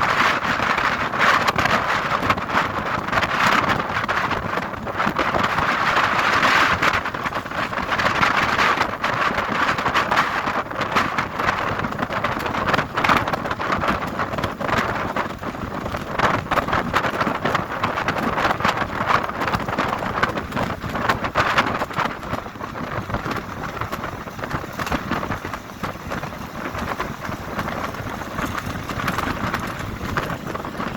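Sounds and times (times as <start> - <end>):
heavy rain falling: 18.5 - 30.9.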